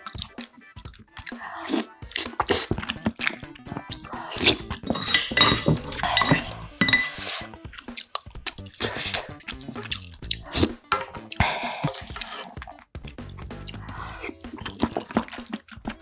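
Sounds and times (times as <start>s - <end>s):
cutlery scraping a bowl: 4.4s - 7.5s.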